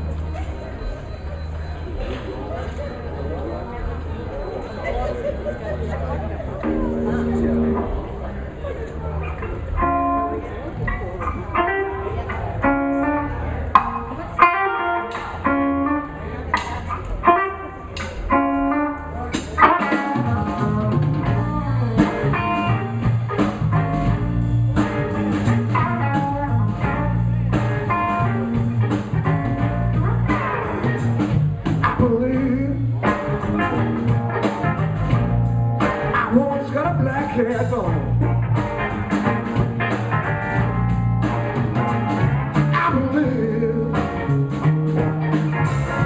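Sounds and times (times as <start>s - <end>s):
bass guitar: 0.0s - 46.0s
blues guitar lead lines: 0.0s - 46.0s
drums playing steady beat: 6.6s - 8.2s, 19.3s - 46.0s.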